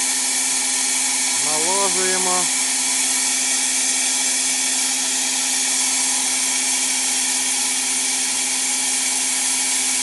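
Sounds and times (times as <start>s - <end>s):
steady hum: 1.0s - 6.2s
spray gun hissing: 1.3s - 6.8s.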